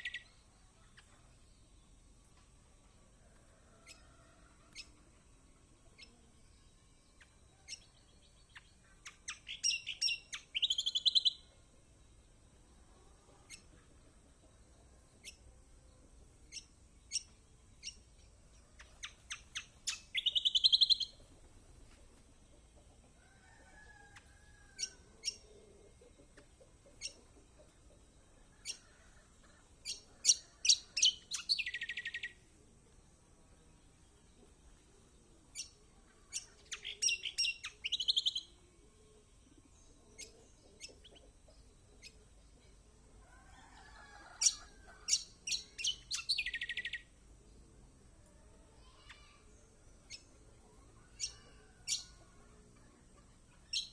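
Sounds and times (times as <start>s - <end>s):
bird chipping: 8.5s - 11.5s, 16.5s - 21.2s, 29.8s - 32.4s, 35.5s - 38.6s, 44.4s - 47.1s, 51.2s - 52.2s, 53.6s - 53.9s.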